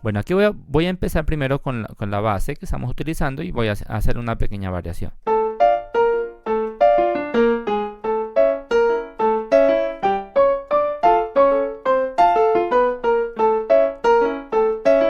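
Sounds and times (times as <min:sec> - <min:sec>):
solo piano repeated chords: 0:05.2 - 0:15.0.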